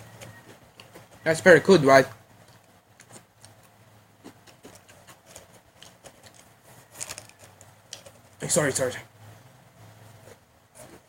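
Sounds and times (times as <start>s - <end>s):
crunching of crispy potato sticks: 2.5s - 8.2s.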